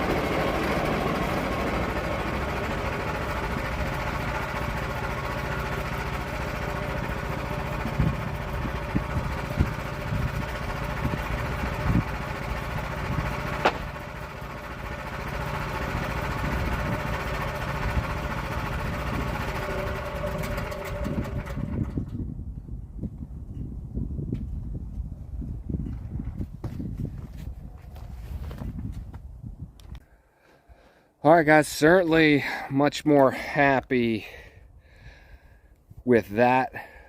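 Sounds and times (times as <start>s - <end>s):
sawmill engine running: 0.0s - 22.3s
sharp knocks: 13.6s - 14.0s.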